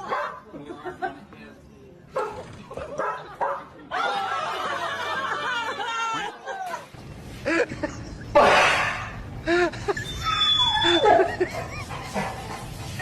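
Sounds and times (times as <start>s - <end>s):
people laughing: 2.7s - 8.5s, 9.4s - 13.0s.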